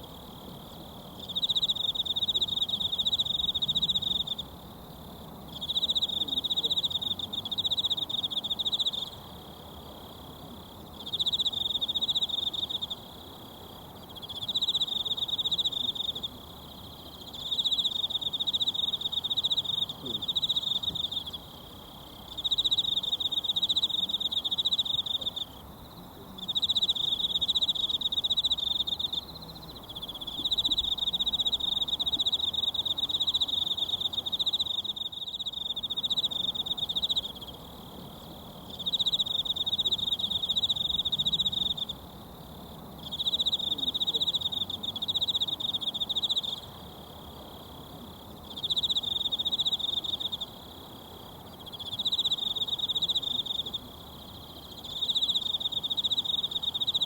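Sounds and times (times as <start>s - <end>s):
insect trilling: 26.4s - 42.1s, 43.0s - 57.0s.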